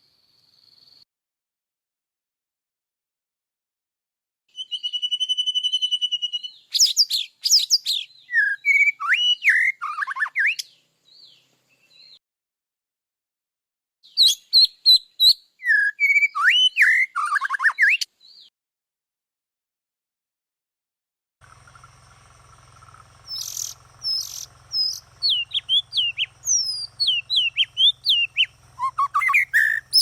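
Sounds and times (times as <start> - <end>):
songbird singing: 4.5 - 12.2, 14.0 - 18.5, 21.4 - 30.0.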